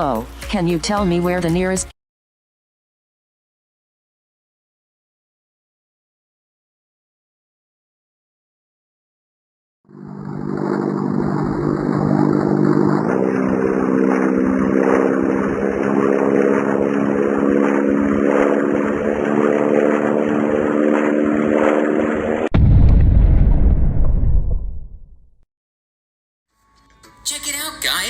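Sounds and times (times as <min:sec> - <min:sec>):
airplane engine drone: 0:09.9 - 0:22.5.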